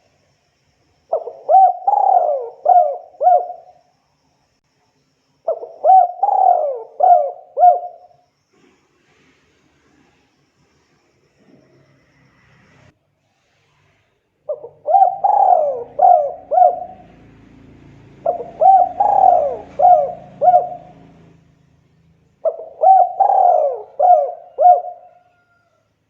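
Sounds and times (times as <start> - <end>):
dove cooing: 1.1 - 3.8, 5.5 - 8.2, 14.5 - 21.4, 22.4 - 25.8.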